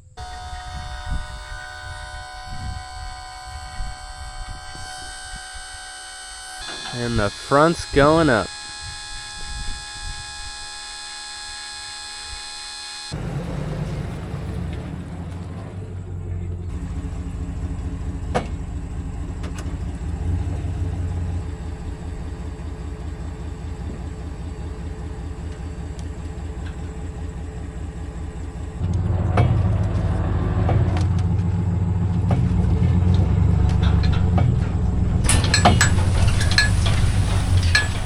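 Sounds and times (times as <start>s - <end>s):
hydraulic pump motor whining: 0.0s - 38.0s
vehicle engine rumbling: 0.0s - 38.0s.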